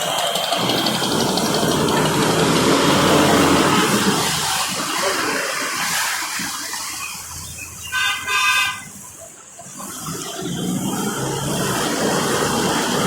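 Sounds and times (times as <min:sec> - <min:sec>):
traffic on wet road: 0:00.0 - 0:13.0
vehicle horn honking: 0:07.8 - 0:09.0.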